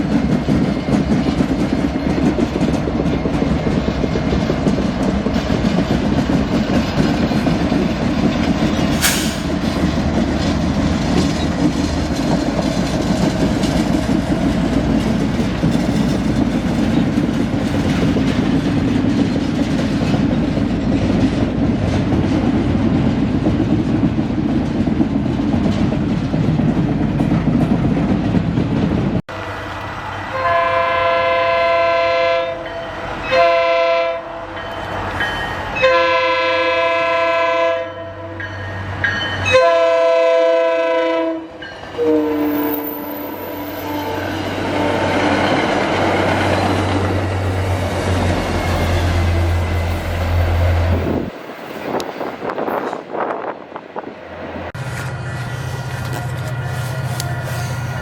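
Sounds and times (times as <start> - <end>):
train rumbling past: 0.0 - 58.0
locomotive air horn blasts: 30.3 - 34.5, 35.8 - 38.4, 39.4 - 45.2.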